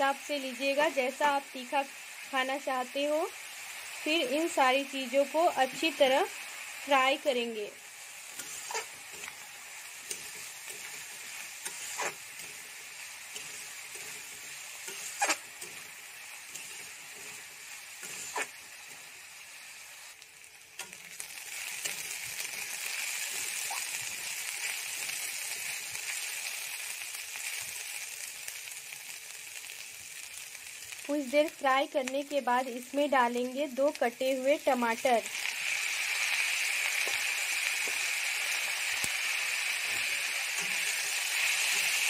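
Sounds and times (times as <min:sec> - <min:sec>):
food sizzling in hot oil: 0:00.0 - 0:42.0
spatula scraping and knocking pan: 0:10.0 - 0:15.9, 0:16.5 - 0:18.6.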